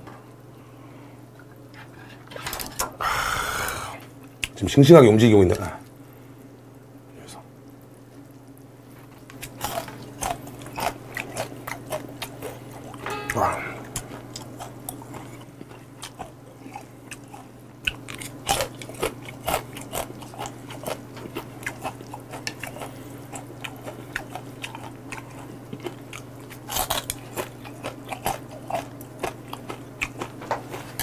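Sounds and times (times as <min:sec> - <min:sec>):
crab shells crunching in chewing: 0:09.2 - 0:13.0, 0:14.2 - 0:31.0.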